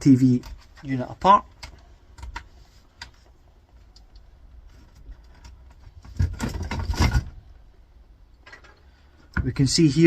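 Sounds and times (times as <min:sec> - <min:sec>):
plastic scraping and knocking: 0:04.6 - 0:07.5.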